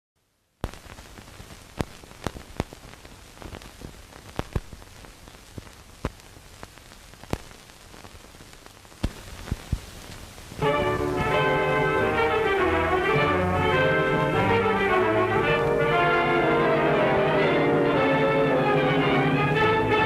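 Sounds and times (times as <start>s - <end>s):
film soundtrack hiss: 0.2s - 20.0s
sharp clicks and pops: 0.6s - 10.3s.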